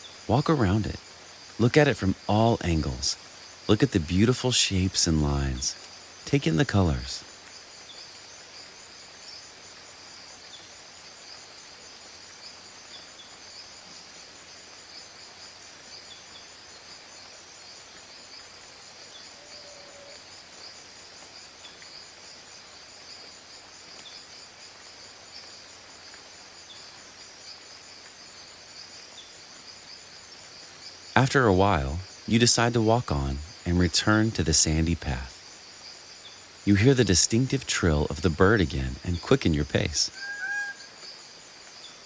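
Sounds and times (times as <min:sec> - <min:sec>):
insects trilling: 0:00.0 - 0:42.0
low animal call: 0:40.1 - 0:41.0.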